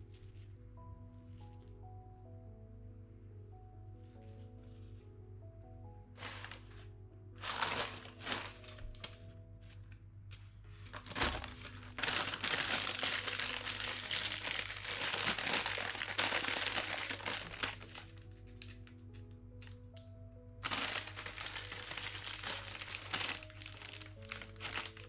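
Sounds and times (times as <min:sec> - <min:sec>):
soft background music: 0:00.0 - 0:25.0
plastic packaging crinkling: 0:06.2 - 0:20.0, 0:20.6 - 0:25.0.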